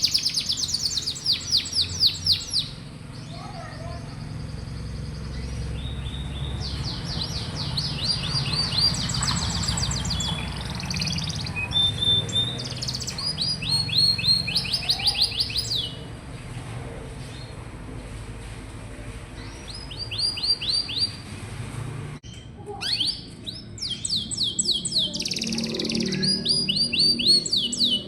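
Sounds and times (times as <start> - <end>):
canary singing trills: 0.0 - 16.2, 19.3 - 21.3, 22.2 - 28.0.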